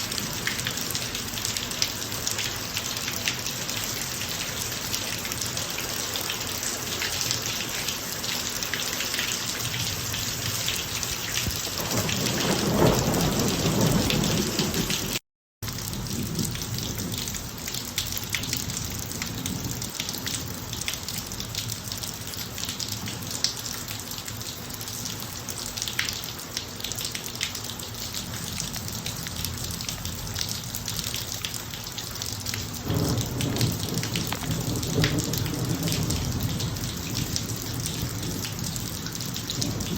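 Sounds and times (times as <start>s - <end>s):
rain falling on driveway: 0.0s - 39.9s
thunder rumbling: 11.5s - 15.2s, 32.8s - 39.9s.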